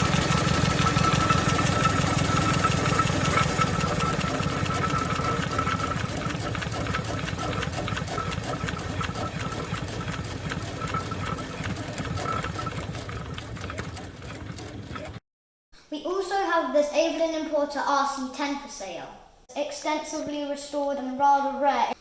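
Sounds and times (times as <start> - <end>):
steam engine running: 0.0 - 15.2.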